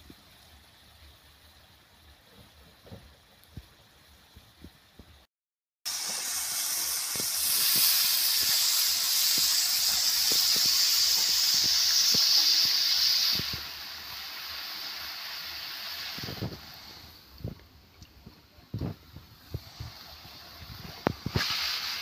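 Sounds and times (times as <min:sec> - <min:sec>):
vegetables sizzling in a hot pan: 0:05.9 - 0:17.5, 0:19.3 - 0:22.0.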